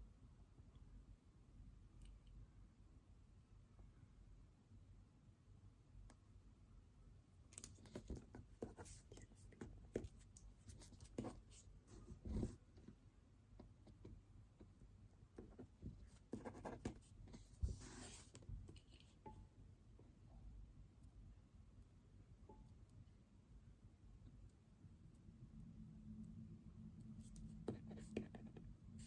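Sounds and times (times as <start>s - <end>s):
pen scratching on paper: 7.8s - 12.6s, 15.4s - 18.4s, 27.2s - 28.6s.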